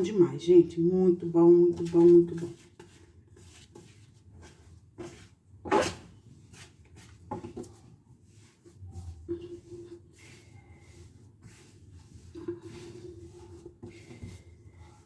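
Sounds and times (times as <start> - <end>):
dough kneading thumps: 1.4 - 15.0.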